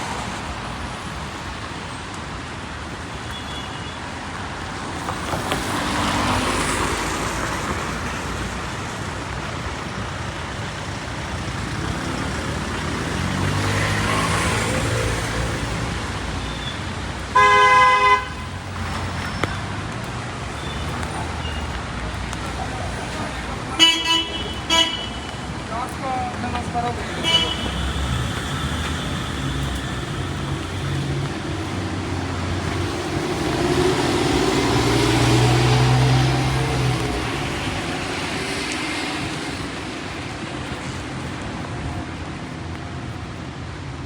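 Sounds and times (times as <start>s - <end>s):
vehicles passing on wet road: 0.0s - 44.0s
car horn: 17.3s - 18.6s, 23.7s - 25.5s, 27.1s - 28.8s.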